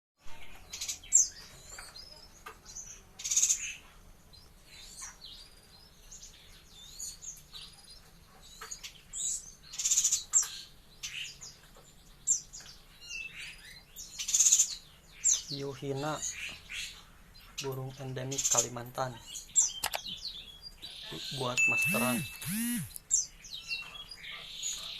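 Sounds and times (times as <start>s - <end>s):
harsh buzzy bird calls: 18.0s - 23.4s
bird twittering: 21.1s - 23.2s.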